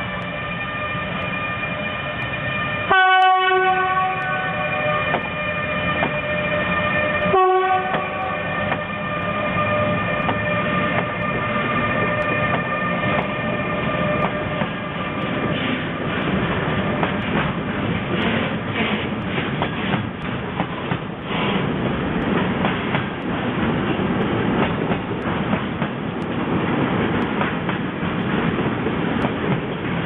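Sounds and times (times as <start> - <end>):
train electric whine and rumble: 0.0 - 30.0
locomotive horn blasts: 2.8 - 15.1.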